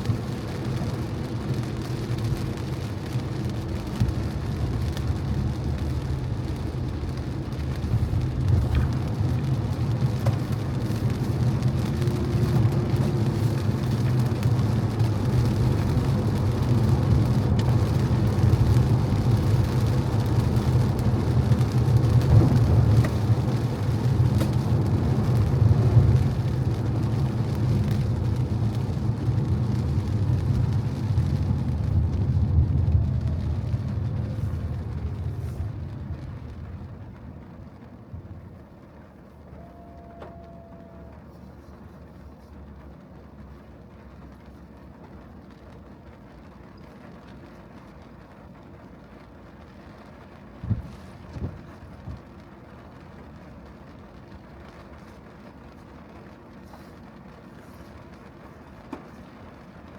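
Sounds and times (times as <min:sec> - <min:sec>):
car engine and road rumble: 0:00.0 - 0:59.9
rain: 0:00.0 - 0:59.9
tyre hiss on wet road: 0:50.1 - 0:52.6, 0:54.2 - 0:59.9.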